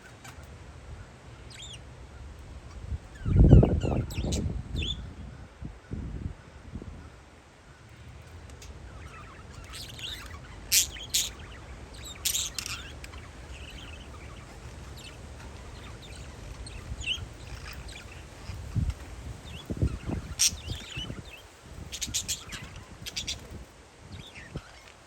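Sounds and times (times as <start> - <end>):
parakeets chirping: 1.4 - 1.8, 3.1 - 5.1, 8.6 - 24.9.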